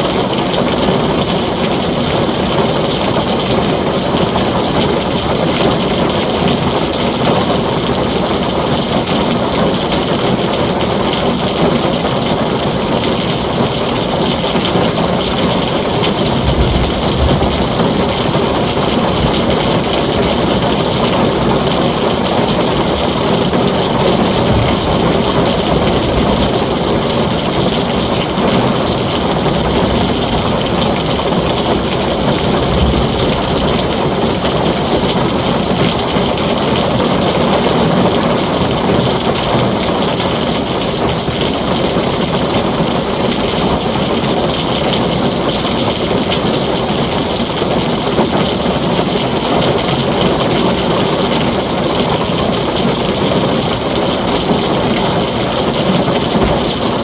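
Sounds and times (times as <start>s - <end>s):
heavy rain on a tin roof: 0.0s - 57.0s
distant thunder rumbles: 0.1s - 39.9s, 53.0s - 57.0s.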